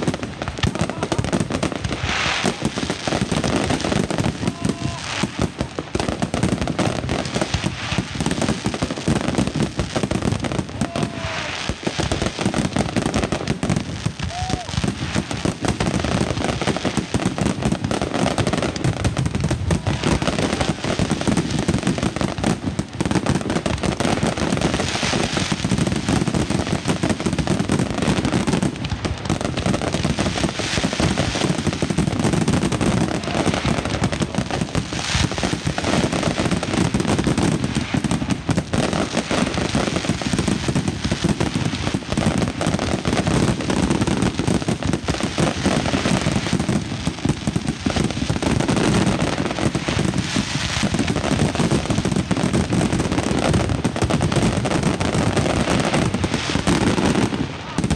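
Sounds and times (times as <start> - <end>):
firecrackers banging rapidly: 0.0 - 57.9.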